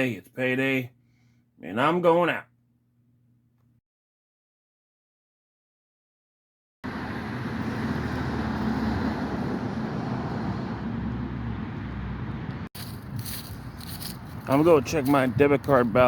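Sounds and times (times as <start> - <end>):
vehicle engine and road noise: 6.8 - 16.0.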